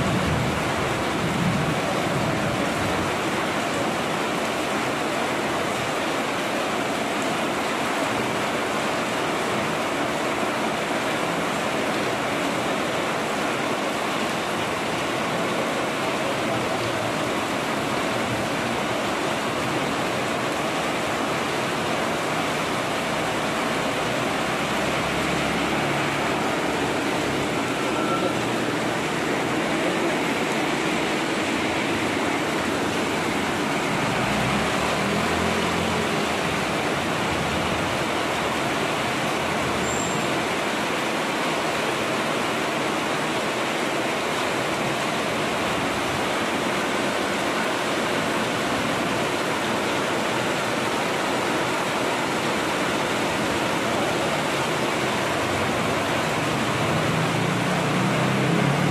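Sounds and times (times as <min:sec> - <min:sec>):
heavy rain hissing: 0:00.0 - 0:58.9
water streaming off roof edge: 0:00.0 - 0:58.9
motorbike engines rumbling past: 0:24.2 - 0:38.0, 0:55.3 - 0:58.9.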